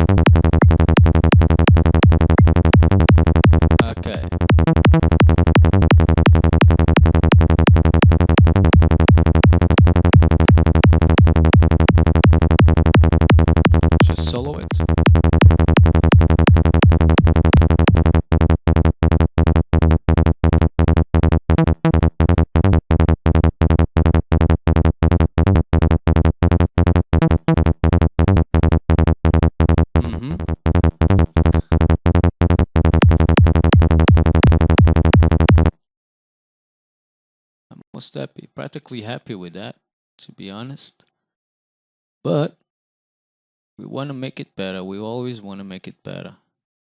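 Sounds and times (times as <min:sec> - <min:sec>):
looping synth bass notes: 0:00.0 - 0:35.8.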